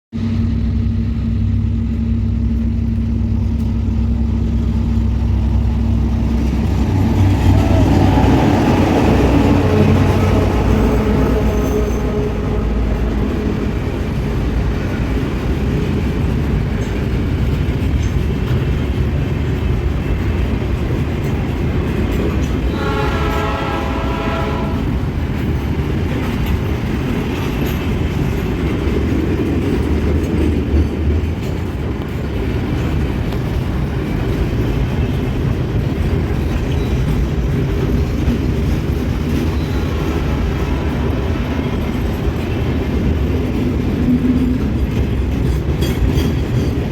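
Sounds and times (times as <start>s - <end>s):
freight train rumbling past: 0.1s - 46.9s
train horn blast: 6.5s - 15.0s, 22.6s - 25.2s.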